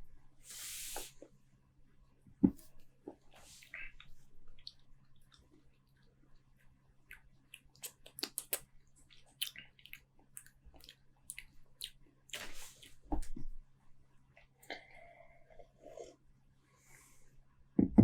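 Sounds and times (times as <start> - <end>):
breathy hiss: 0.4 - 1.2
wet lip smacks and tongue clicks: 7.0 - 13.0.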